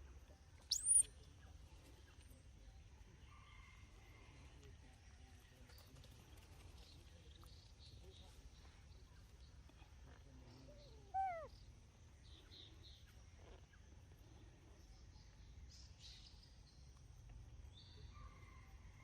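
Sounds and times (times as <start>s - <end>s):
faint low outdoor rumble: 0.0s - 19.0s
faint high chirps: 0.6s - 1.2s.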